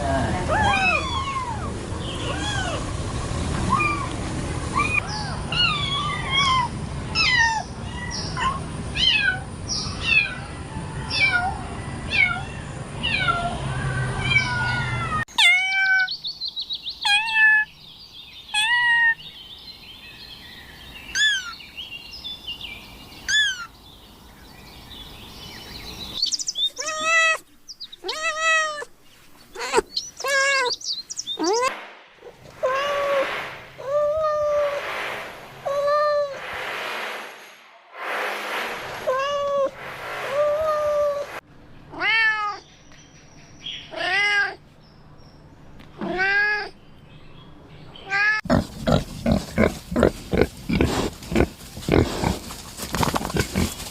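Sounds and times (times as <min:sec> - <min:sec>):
cats meowing: 0:00.5 - 0:02.9, 0:11.1 - 0:16.1, 0:26.6 - 0:28.9, 0:29.5 - 0:31.7, 0:32.5 - 0:33.2, 0:43.9 - 0:44.6, 0:46.0 - 0:46.8.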